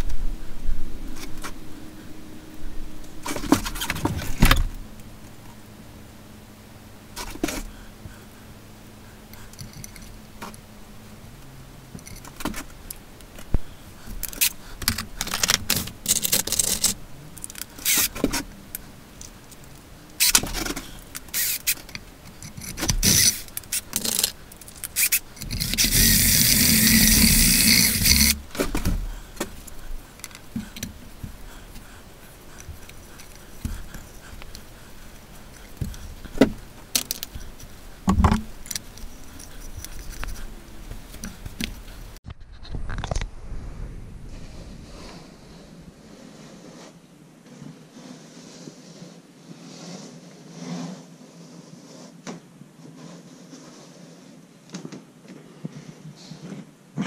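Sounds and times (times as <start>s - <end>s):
loud scraping hiss: 17.6s - 18.5s, 20.2s - 39.8s.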